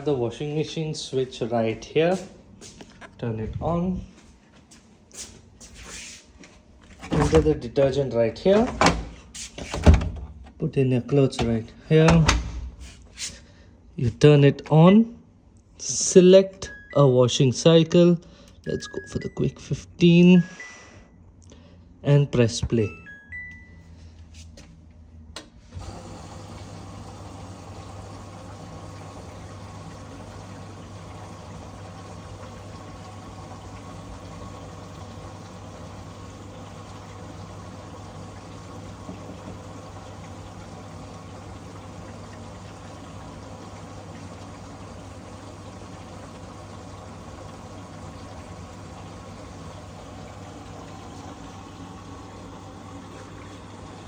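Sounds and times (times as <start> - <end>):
washing machine filling with water: 0.0 - 4.3, 5.2 - 13.4, 25.7 - 54.0.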